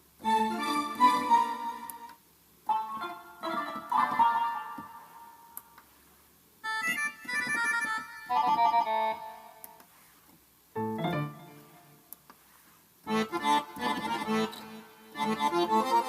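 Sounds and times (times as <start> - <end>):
keyboard playing piano and organ tones: 0.2 - 5.5, 6.6 - 9.6, 10.8 - 12.0, 13.1 - 16.0.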